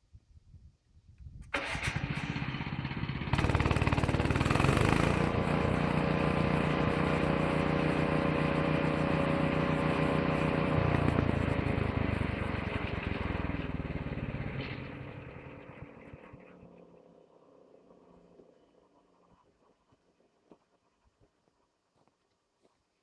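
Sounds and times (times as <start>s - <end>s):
small petrol engine starting up: 1.4s - 18.0s.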